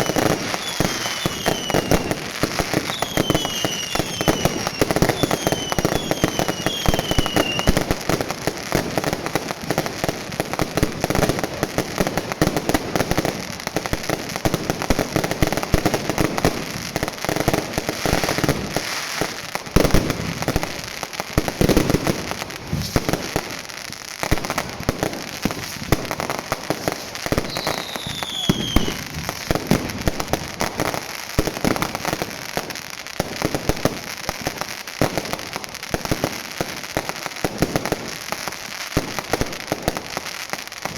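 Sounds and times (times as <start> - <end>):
falling firework whistles: 0.0 - 8.2, 21.6 - 23.5, 24.8 - 31.8
fireworks crackling and banging: 0.0 - 40.9.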